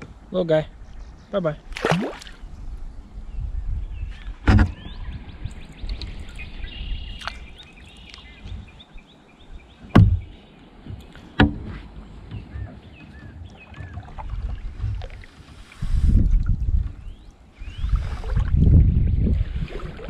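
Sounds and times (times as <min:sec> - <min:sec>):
birds chirping: 0:00.0 - 0:15.8, 0:16.9 - 0:18.2
knocks against a kayak: 0:04.4 - 0:05.0, 0:09.8 - 0:15.2.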